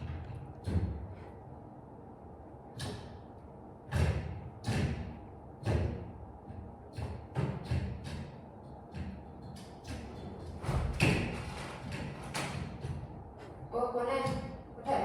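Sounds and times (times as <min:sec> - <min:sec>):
knocks and thuds: 0:09.8 - 0:13.1.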